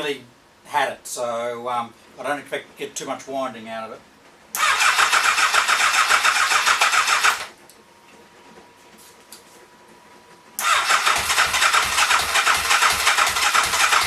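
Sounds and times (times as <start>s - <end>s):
electric starter cranking engine: 4.6s - 7.6s, 10.6s - 14.0s.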